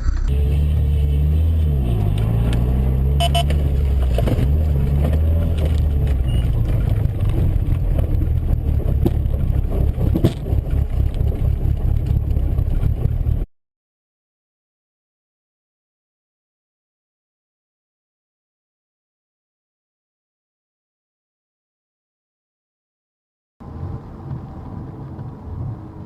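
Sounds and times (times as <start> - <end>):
car engine running: 0.0 - 13.5
road noise: 0.0 - 13.5, 23.6 - 26.0.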